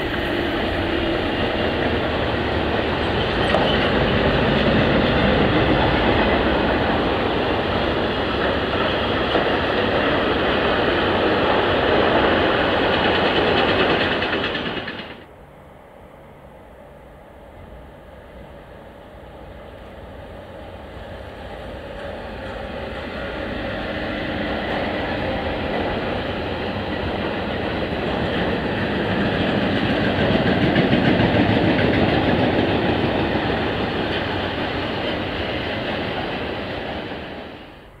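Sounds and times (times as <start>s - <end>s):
freight train rolling past: 0.0s - 38.0s.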